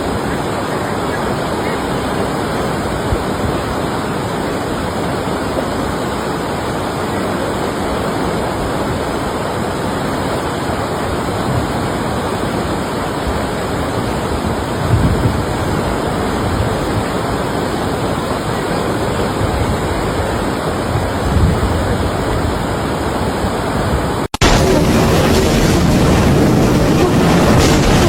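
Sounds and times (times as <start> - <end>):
floodwater rushing: 0.0 - 28.0.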